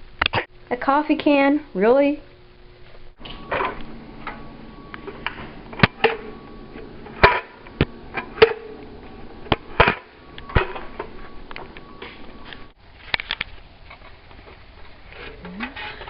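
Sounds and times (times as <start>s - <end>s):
vent parts knocking and clattering: 3.2s - 13.4s.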